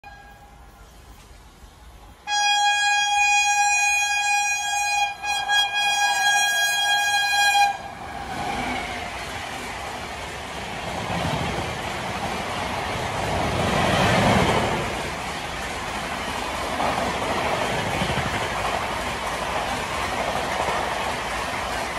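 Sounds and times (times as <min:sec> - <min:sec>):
locomotive horn blast: 0:00.0 - 0:00.8, 0:02.2 - 0:08.3
train coaches clattering past: 0:00.0 - 0:21.9.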